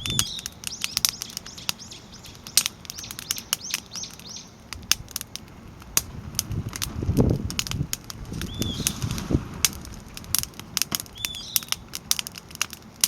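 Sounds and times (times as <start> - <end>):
bird chirping: 0.0 - 4.6, 8.4 - 9.0, 11.1 - 11.8
fire crackling and popping: 0.0 - 13.0.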